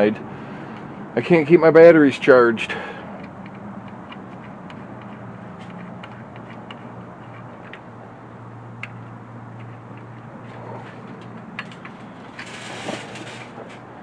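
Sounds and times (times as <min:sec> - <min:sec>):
steady low hum: 0:00.0 - 0:14.0
hand tools clicking and clinking: 0:09.6 - 0:13.8.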